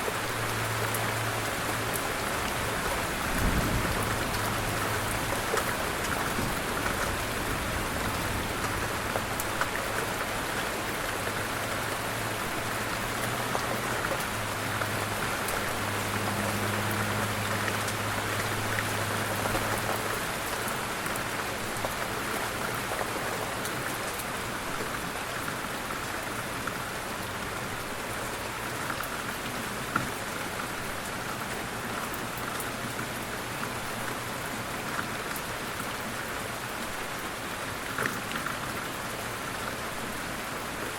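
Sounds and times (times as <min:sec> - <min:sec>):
light rain pattering: 0:00.0 - 0:40.9.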